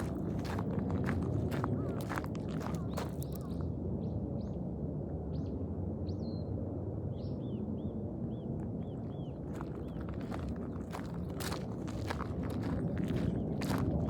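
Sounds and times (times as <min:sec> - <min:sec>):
small birds chirping: 0:01.5 - 0:03.6.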